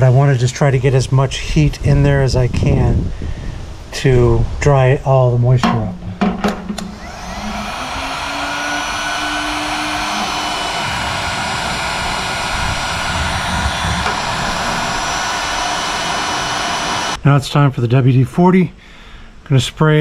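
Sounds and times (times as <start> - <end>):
heat gun switch click: 6.5 - 8.2
heat gun fan blowing: 6.5 - 17.2.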